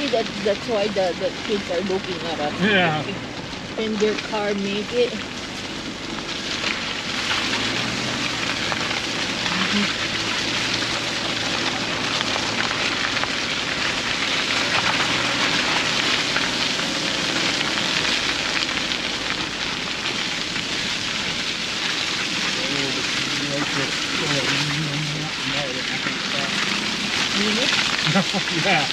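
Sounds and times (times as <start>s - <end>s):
crackling patter: 0.0s - 28.9s
faint low engine hum: 0.0s - 28.9s.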